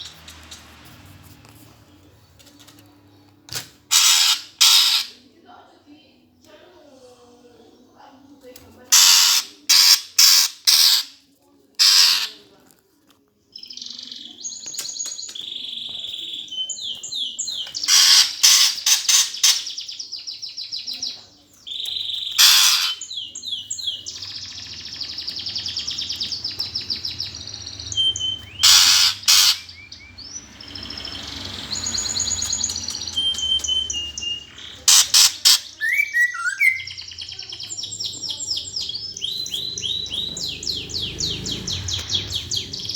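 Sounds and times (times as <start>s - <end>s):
sparrows chirping harshly: 0.0s - 3.2s, 3.8s - 5.3s, 8.8s - 11.2s, 11.8s - 12.5s, 13.5s - 42.9s
high chattering trills: 22.1s - 42.9s.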